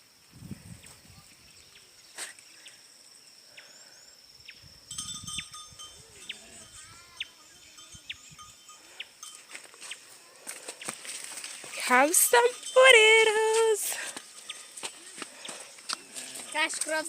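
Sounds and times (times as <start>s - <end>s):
faint farm animal calls: 6.0s - 9.2s, 14.4s - 16.6s.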